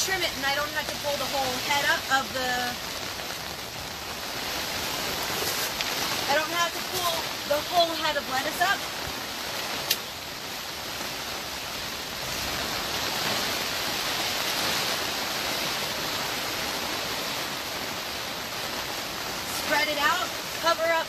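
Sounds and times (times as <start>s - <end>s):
rain pattering on plastic cover: 0.0s - 21.0s.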